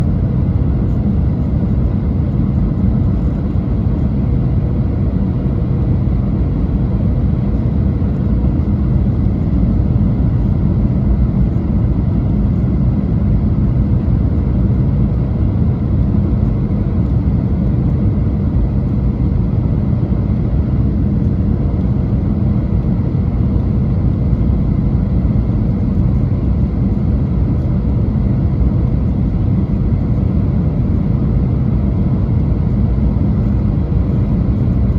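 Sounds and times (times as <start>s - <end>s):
airplane cabin engine rumble: 0.0s - 34.9s.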